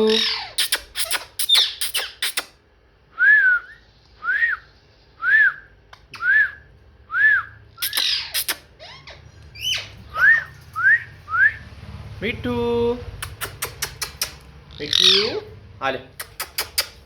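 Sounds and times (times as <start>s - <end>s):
parrot squawking: 0.0s - 2.6s, 7.8s - 10.6s, 13.3s - 15.6s
parrot whistling: 3.2s - 11.6s.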